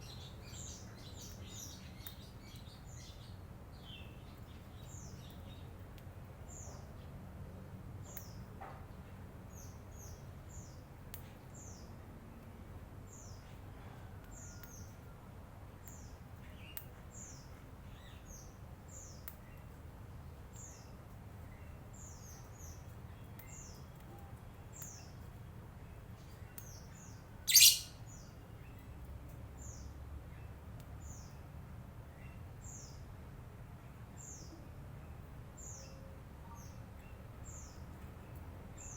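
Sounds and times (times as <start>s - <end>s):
bird chirping: 26.2s - 28.8s
sharp bird call: 27.5s - 27.9s.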